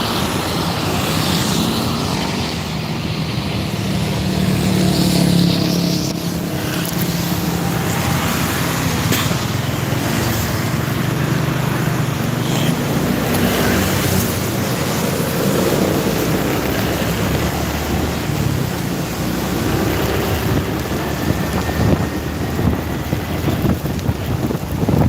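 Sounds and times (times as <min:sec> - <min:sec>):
tyres on wet road: 0:00.0 - 0:25.0
wind rushing: 0:00.0 - 0:25.0.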